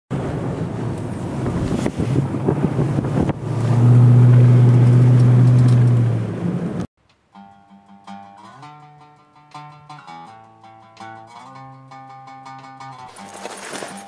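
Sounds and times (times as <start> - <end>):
wind buffeting microphone: 0.2 - 6.9.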